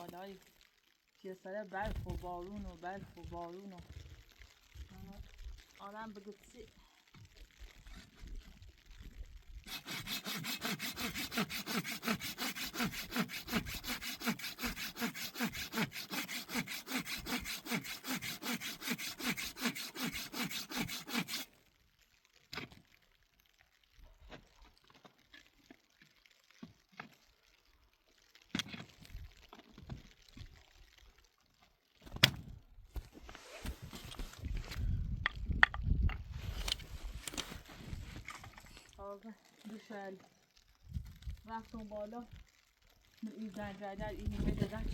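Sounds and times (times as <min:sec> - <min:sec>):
hand saw cutting wood: 0:09.6 - 0:21.6.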